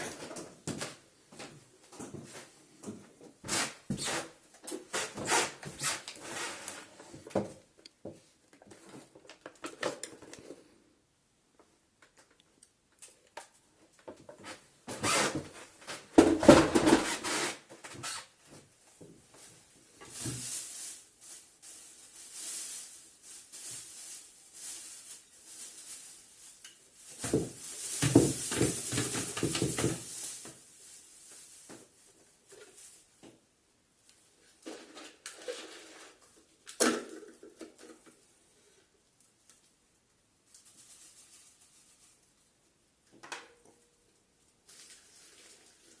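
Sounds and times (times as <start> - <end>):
plastic parts clattering: 20.0 - 32.9.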